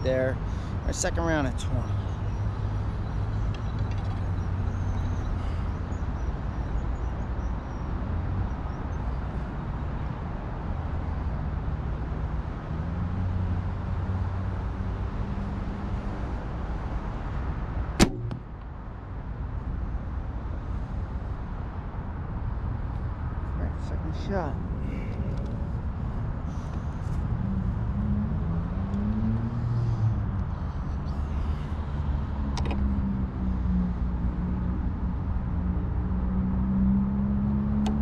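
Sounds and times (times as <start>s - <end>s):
compound bow snap: 18.0s - 18.5s.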